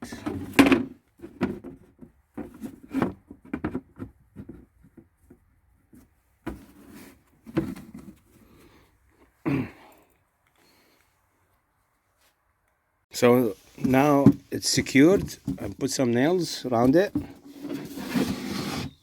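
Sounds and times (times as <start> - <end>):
stick creaking against wooden box: 13.8 - 19.0.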